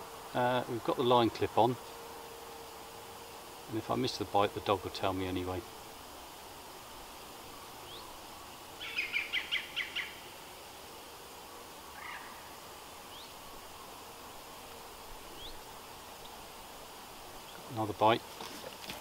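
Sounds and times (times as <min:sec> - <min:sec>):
steady background hiss: 0:00.0 - 0:19.0
bird calling high notes: 0:11.9 - 0:13.4.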